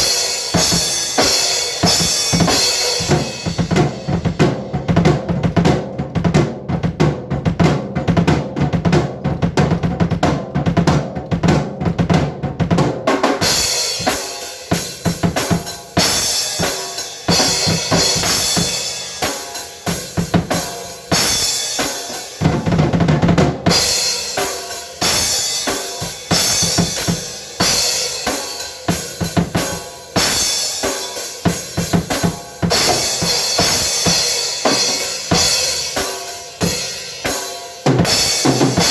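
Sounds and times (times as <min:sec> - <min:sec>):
cymbals: 0:00.0 - 0:04.4, 0:13.4 - 0:22.6, 0:23.7 - 0:38.9
drum kit playing: 0:00.0 - 0:38.9
low drums rapid strikes: 0:00.0 - 0:38.9.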